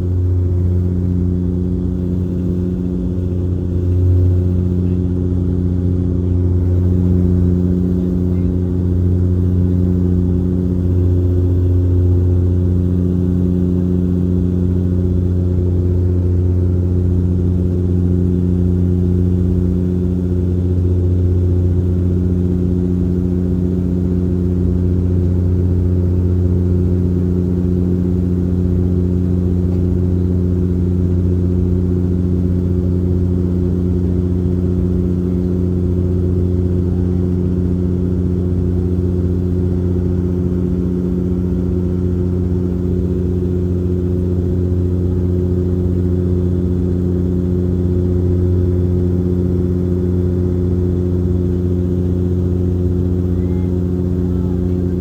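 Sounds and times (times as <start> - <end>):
turboprop cabin drone: 0.0 - 55.0.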